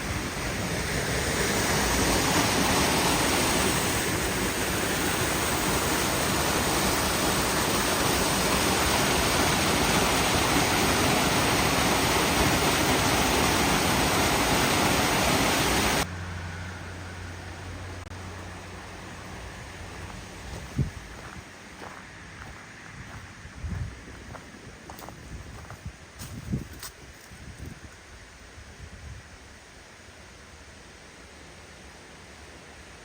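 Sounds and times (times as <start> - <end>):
waterfall roaring: 0.0 - 16.1
low hum: 15.1 - 24.6.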